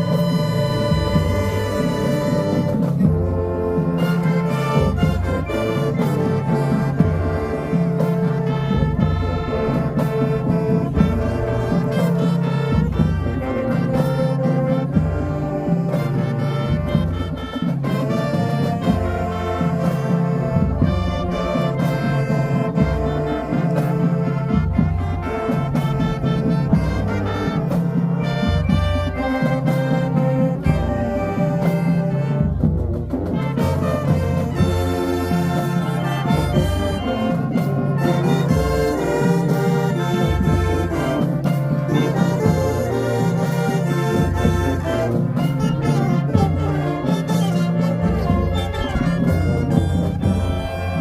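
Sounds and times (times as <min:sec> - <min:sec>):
brass section playing: 0:00.0 - 0:51.0
marching drum hits: 0:40.3 - 0:51.0.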